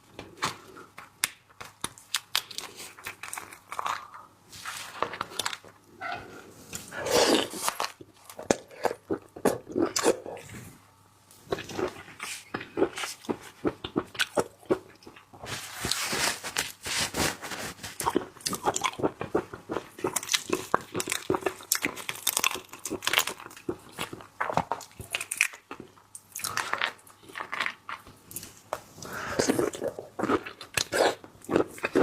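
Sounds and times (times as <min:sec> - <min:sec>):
crab shell cracking and crunching: 0:01.0 - 0:04.2, 0:20.0 - 0:28.1.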